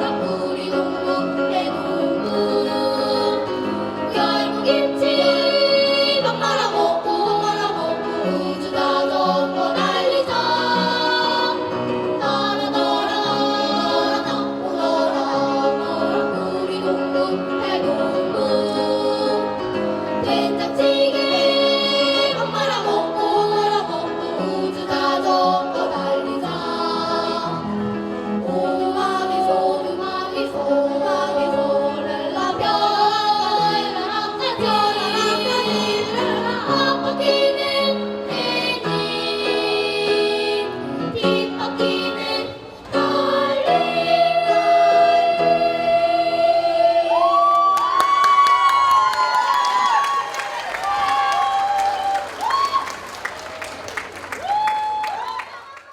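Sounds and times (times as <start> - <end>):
small vocal ensemble singing: 0.0 - 48.1.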